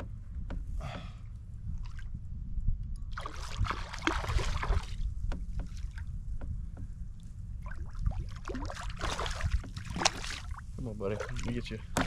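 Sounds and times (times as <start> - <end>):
steady low rumble: 0.0 - 12.0
water splashing: 3.2 - 6.1, 7.6 - 12.0
light knocks and clicks: 5.2 - 7.0.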